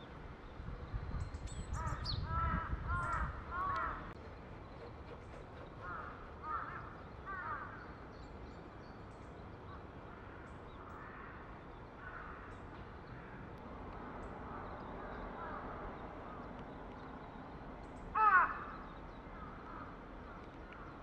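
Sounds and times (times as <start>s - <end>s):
harsh bird calls: 17.8s - 21.0s.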